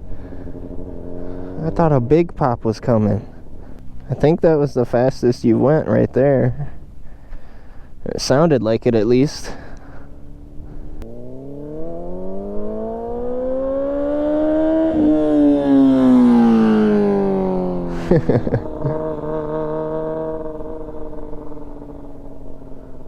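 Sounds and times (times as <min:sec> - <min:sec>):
motorcycle engine revving: 0:00.0 - 0:04.2, 0:09.8 - 0:23.0.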